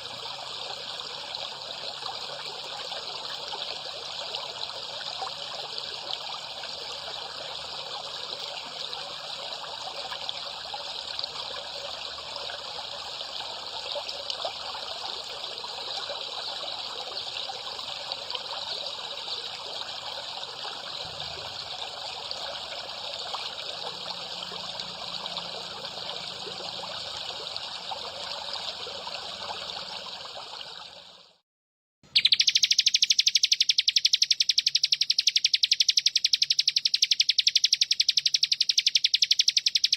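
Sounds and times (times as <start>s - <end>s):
water trickling: 0.0s - 31.4s, 32.2s - 39.9s
fast high pulsing trill: 32.2s - 39.9s.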